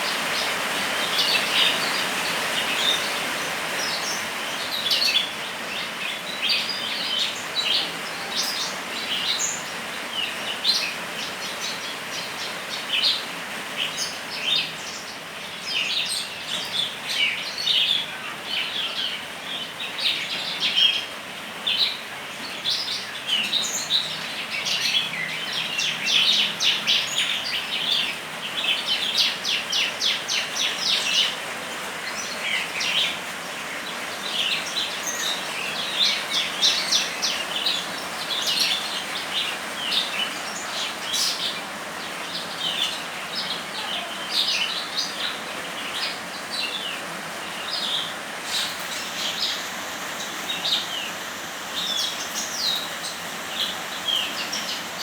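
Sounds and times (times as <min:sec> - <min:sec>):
songbirds chirping and trilling: 0:00.0 - 0:55.0
rain hissing: 0:30.5 - 0:55.0.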